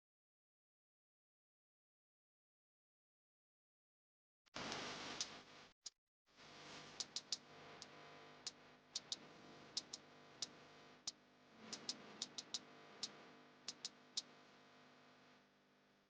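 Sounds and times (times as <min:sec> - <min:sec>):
faint steady hum: 0:06.4 - 0:16.0
sharp light clicks: 0:07.0 - 0:09.2, 0:09.8 - 0:10.6, 0:11.7 - 0:14.3.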